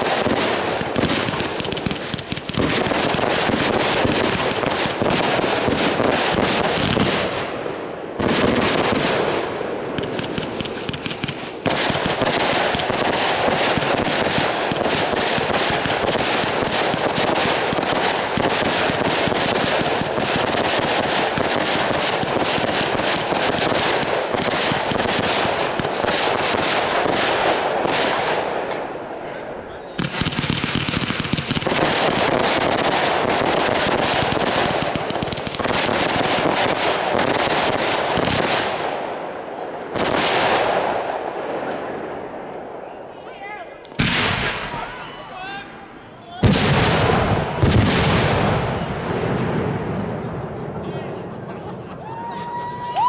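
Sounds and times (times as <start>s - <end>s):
fireworks bangs and crackle: 0.0s - 53.0s.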